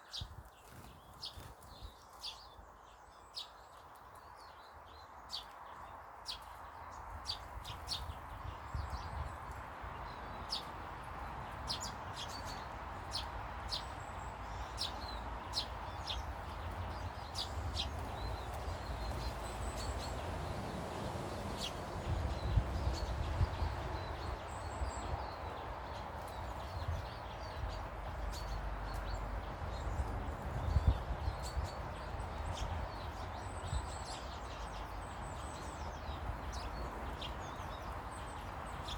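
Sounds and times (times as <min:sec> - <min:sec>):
small birds chirping: 0:00.0 - 0:38.9
low rumble gusts: 0:15.9 - 0:34.8.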